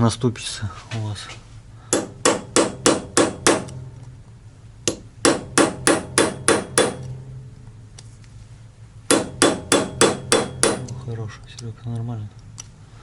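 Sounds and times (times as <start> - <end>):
hammer striking metal: 1.9 - 4.1, 4.8 - 7.7, 9.1 - 11.0.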